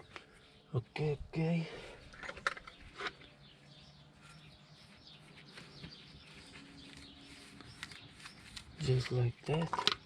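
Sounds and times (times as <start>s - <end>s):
faint birds chirping: 0.0s - 10.0s.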